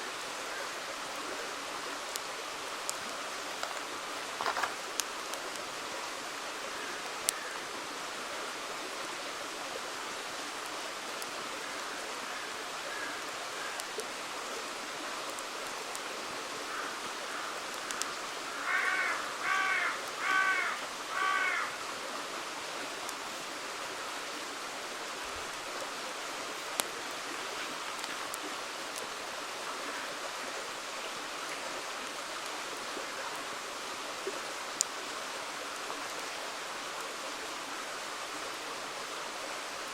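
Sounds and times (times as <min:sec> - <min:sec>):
campfire crackles: 0:00.0 - 0:39.9
river water rushing: 0:00.0 - 0:39.9
crow cawing: 0:16.7 - 0:21.8.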